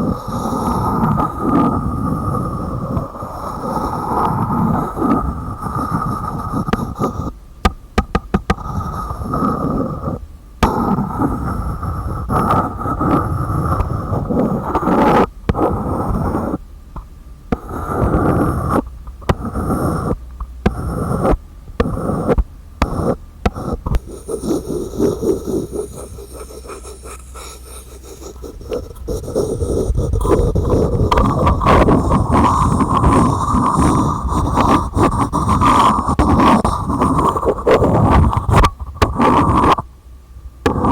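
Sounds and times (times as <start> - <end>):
hands scratching on containers: 0.0 - 7.4, 8.4 - 16.6, 17.5 - 39.9, 40.7 - 40.9
sharp clicks and taps: 20.3 - 24.4.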